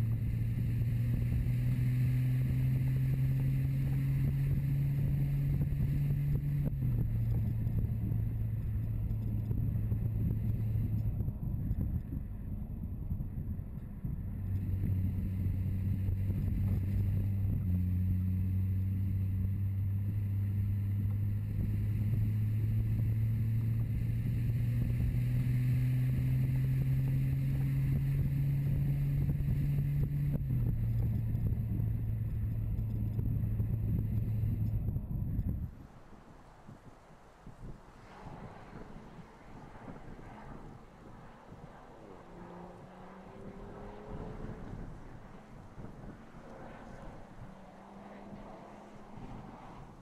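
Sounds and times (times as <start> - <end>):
road noise: 0.0 - 50.0
wind noise: 0.0 - 50.0
car engine pulling: 37.3 - 50.0.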